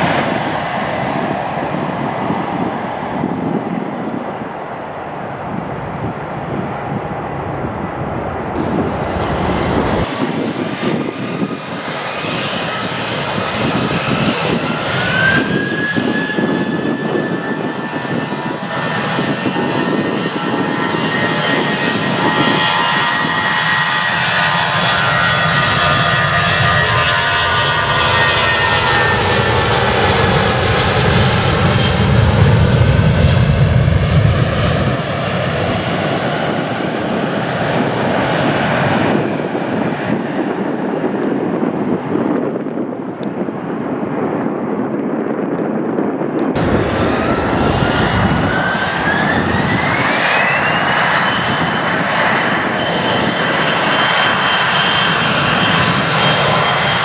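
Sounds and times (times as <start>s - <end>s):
high turbine whine: 0.0s - 10.1s, 46.6s - 51.3s
deep rumble of passing aircraft: 0.0s - 42.3s, 46.4s - 57.0s
jet engines at takeoff: 0.0s - 44.7s, 46.1s - 57.0s.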